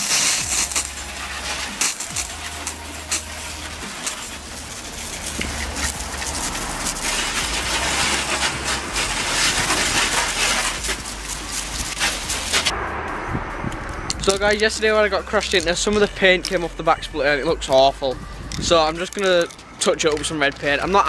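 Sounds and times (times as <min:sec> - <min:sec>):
hose water spraying on car: 0:00.0 - 0:12.7.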